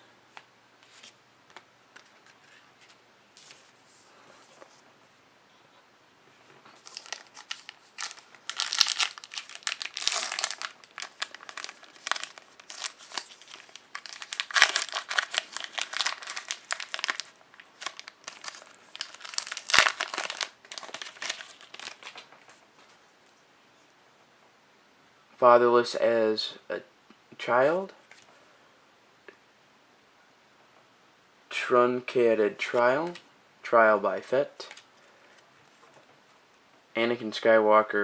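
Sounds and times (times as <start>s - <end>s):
foil wrapper crinkling and tearing: 6.8s - 22.3s.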